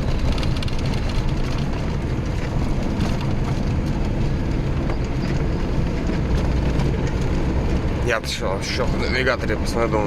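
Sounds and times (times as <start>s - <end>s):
engine and tyres rumbling: 0.0s - 10.0s
van body rattling: 0.0s - 10.0s.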